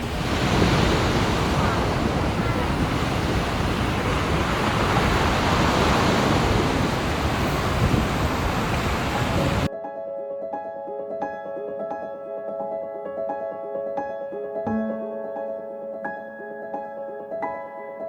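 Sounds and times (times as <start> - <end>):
waves washing on a beach: 0.0 - 9.7.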